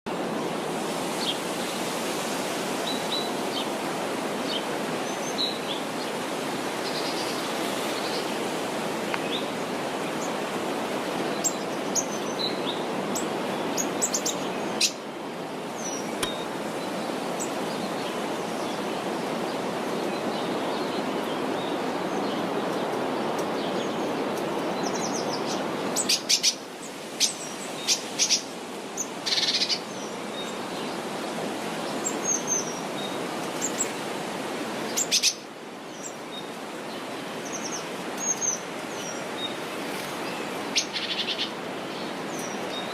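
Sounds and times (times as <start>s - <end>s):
rushing outdoor background noise: 0.1s - 42.9s
small birds chirping: 34.9s - 42.9s.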